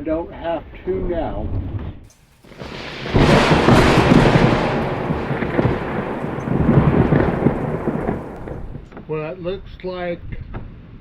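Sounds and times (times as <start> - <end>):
thunder rumbling and crackling: 2.4 - 8.8.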